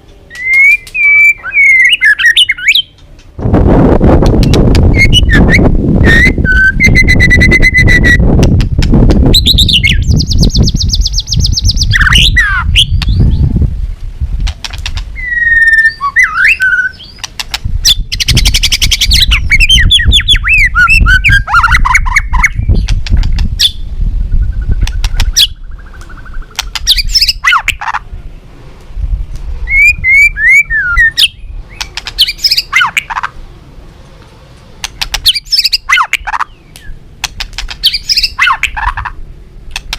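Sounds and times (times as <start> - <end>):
bird singing whistles and trills: 0.3 - 2.9, 4.4 - 8.4, 9.3 - 13.5, 15.2 - 23.0, 23.6 - 27.8, 29.6 - 33.2, 35.1 - 37.0, 37.8 - 39.0.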